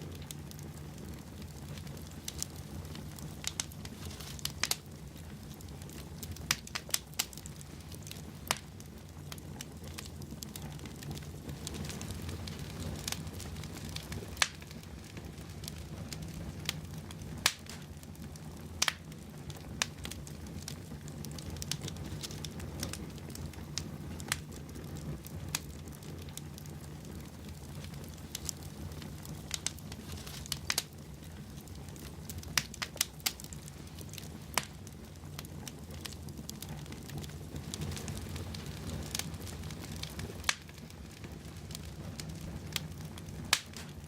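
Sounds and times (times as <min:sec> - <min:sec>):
fire rumbling: 0:00.0 - 0:44.0
logs crackling and popping: 0:00.0 - 0:44.0.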